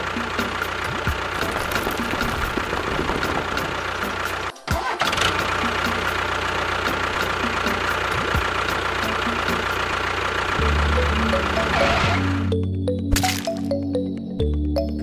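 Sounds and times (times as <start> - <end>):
engine idling: 0.0 - 12.6
steady low musical tone: 10.5 - 15.0.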